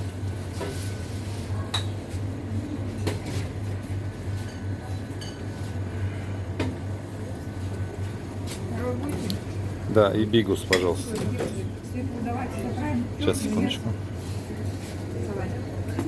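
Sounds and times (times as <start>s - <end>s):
steady low hum: 0.0s - 15.9s
crockery and cutlery clinking: 10.7s - 11.7s.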